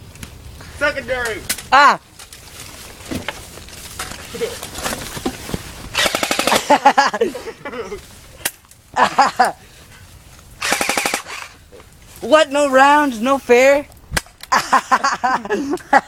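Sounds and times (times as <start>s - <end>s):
airsoft guns firing bursts: 5.9s - 6.7s, 10.6s - 11.6s
single airsoft shots: 10.6s - 11.5s.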